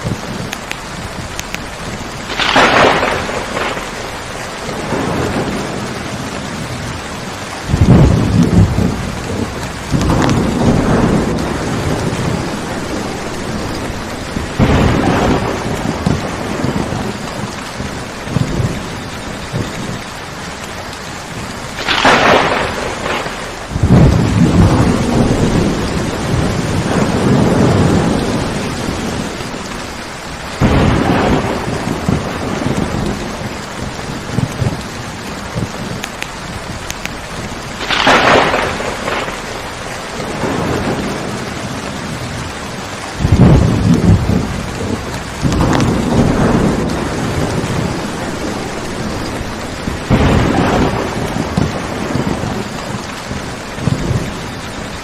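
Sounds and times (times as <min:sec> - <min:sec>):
heavy rain: 0:00.0 - 0:55.0
thunder rolling: 0:00.0 - 0:55.0.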